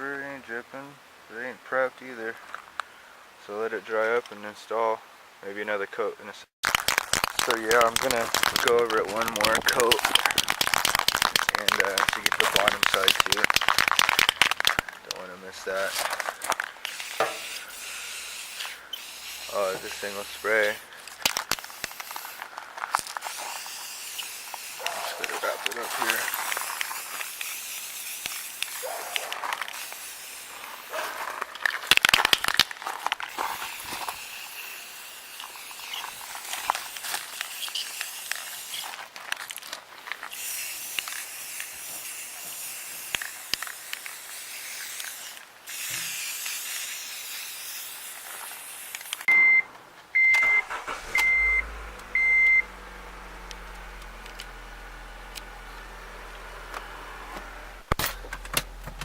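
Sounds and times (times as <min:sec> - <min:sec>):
spray paint can hissing: 0:06.6 - 0:14.9, 0:15.6 - 0:39.1, 0:40.0 - 0:49.3
short electronic beeps: 0:49.3 - 0:52.7.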